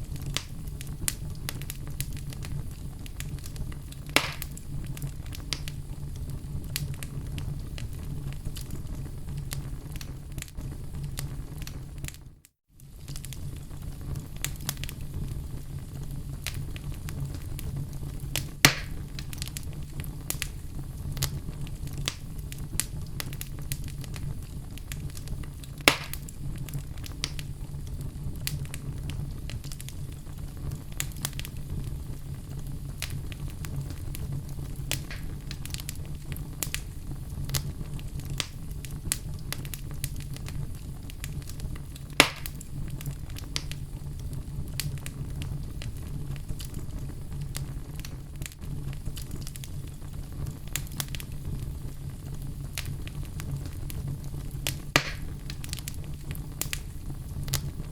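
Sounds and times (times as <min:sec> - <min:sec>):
wood fire crackling: 0:00.0 - 0:57.9
logs popping loudly: 0:55.0 - 0:55.3.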